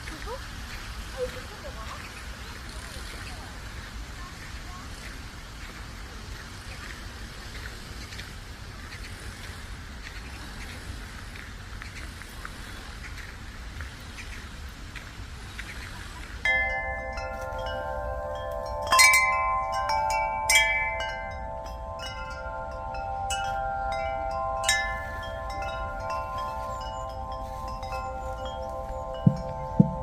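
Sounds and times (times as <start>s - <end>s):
chimes ringing: 16.4s - 30.0s.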